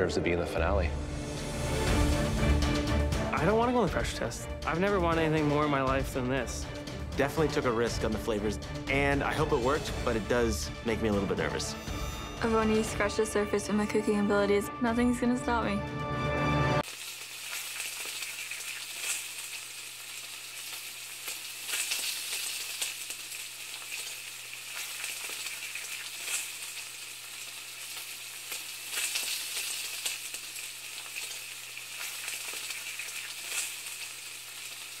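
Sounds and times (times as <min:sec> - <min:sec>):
food sizzling and crackling: 0:16.8 - 0:35.0
oil popping: 0:16.8 - 0:35.0.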